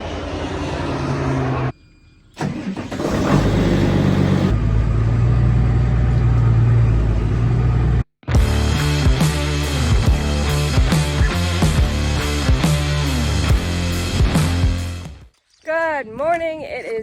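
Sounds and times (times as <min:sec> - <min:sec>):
vehicle engine running: 0:03.2 - 0:08.1.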